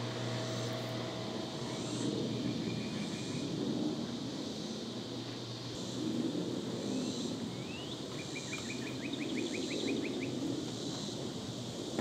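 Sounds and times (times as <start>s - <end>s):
low hum of backyard ambience: 0.0s - 12.0s
songbird singing: 7.0s - 11.2s.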